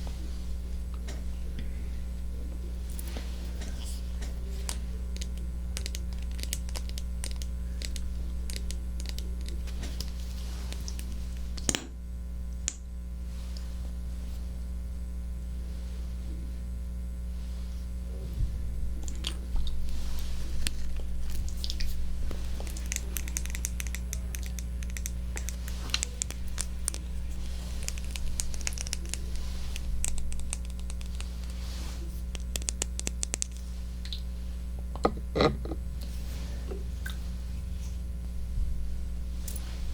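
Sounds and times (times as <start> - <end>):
soft scratching: 0.0 - 6.3, 15.6 - 39.9
low electrical hum: 0.0 - 39.9
crinkling: 19.0 - 36.2.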